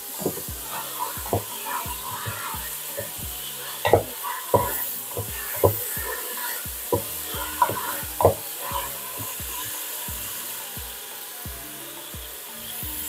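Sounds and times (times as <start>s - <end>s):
paste sizzling in oil: 0.0s - 13.0s
wooden spatula scraping a pot: 0.1s - 9.4s
spatula knocking against pot: 1.2s - 3.2s, 3.8s - 6.2s, 6.9s - 8.4s.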